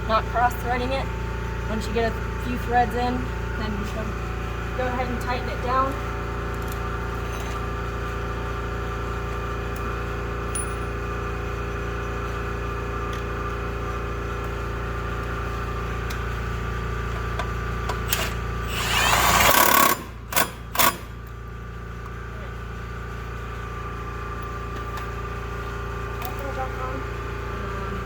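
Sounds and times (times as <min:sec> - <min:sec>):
impact wrench tightening bolt: 0:18.1 - 0:21.2.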